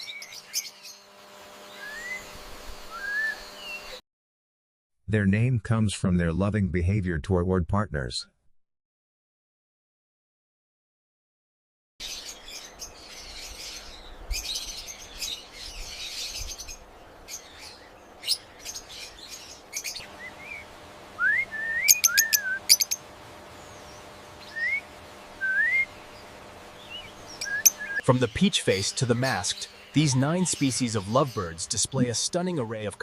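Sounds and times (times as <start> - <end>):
bird rising whistles: 1.8 - 2.3, 2.9 - 3.9, 21.2 - 23.0, 24.5 - 25.9, 26.9 - 28.0
lovebirds chattering and chirping: 12.0 - 20.7, 21.9 - 24.5, 25.1 - 33.0.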